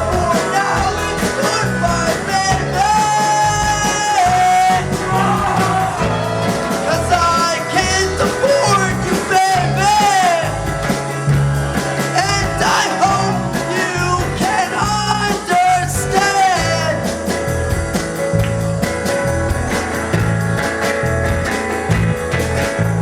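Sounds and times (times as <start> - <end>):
person singing: 0.0 - 10.6, 11.9 - 17.0
rock band playing live: 0.0 - 23.0.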